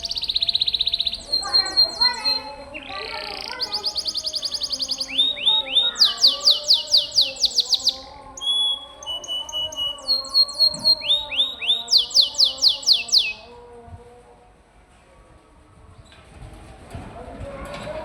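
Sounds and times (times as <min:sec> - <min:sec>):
canary singing: 0:00.0 - 0:13.5.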